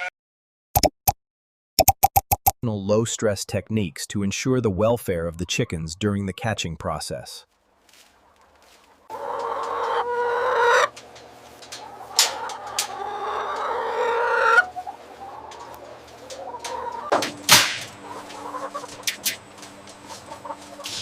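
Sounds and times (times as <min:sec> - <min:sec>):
chickens clucking and squawking: 0:08.1 - 0:21.0.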